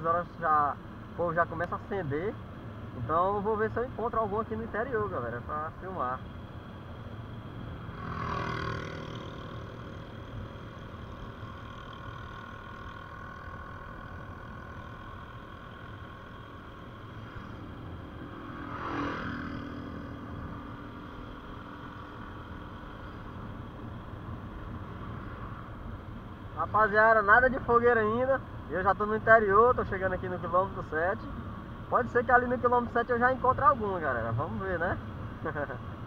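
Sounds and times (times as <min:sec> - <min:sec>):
vehicle road and engine noise: 0:00.0 - 0:36.0.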